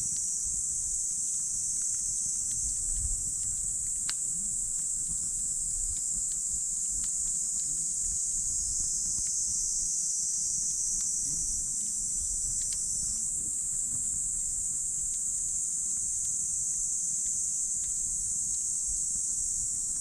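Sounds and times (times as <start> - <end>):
high-pitched hiss: 0.0 - 20.0
campfire crackling and popping: 1.8 - 9.5, 10.7 - 18.9.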